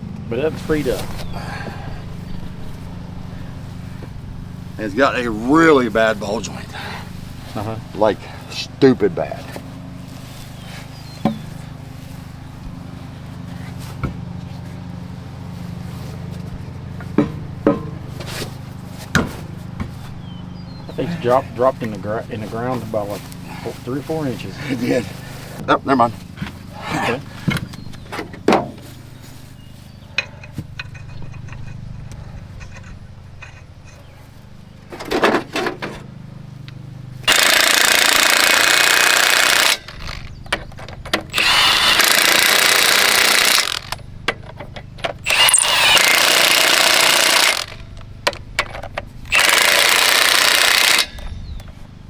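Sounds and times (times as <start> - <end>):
hammering power tool: 17.0 - 20.0, 37.2 - 51.7.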